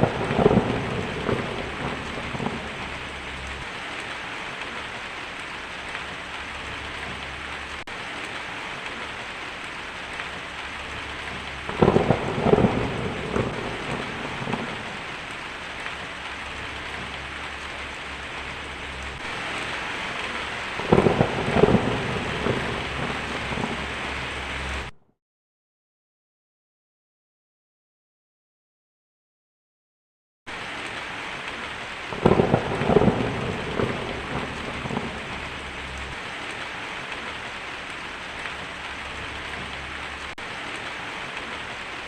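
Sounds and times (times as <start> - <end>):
thunder rumbling: 0.0 - 7.9, 8.7 - 24.9, 32.1 - 40.5
steady rain falling: 0.0 - 25.0, 30.5 - 42.0.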